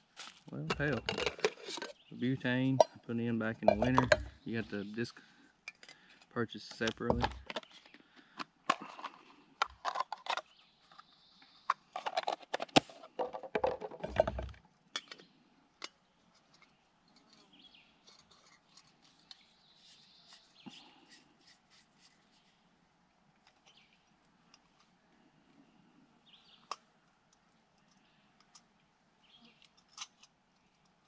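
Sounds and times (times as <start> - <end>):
camp gear clicking and rattling: 0.0 - 3.0, 3.6 - 4.4, 5.6 - 11.1, 11.7 - 19.5
faint birds chirping: 0.0 - 13.2, 14.0 - 31.0.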